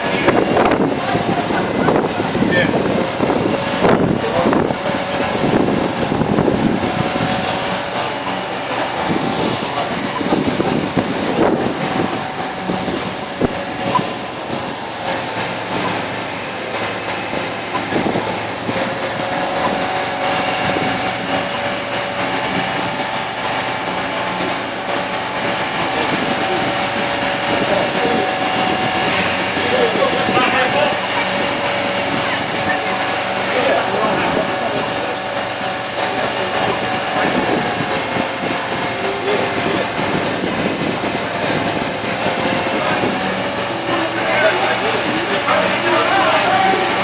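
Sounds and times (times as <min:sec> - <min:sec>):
heavy vehicle engines running: 0:00.0 - 0:47.0
steady two-pitch whine: 0:00.0 - 0:47.0
street noise: 0:00.0 - 0:47.0.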